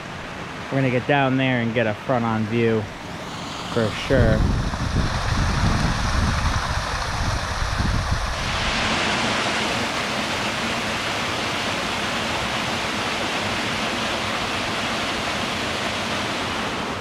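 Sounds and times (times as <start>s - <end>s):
waterfall rushing: 2.8s - 17.0s
low rumble: 3.0s - 8.7s.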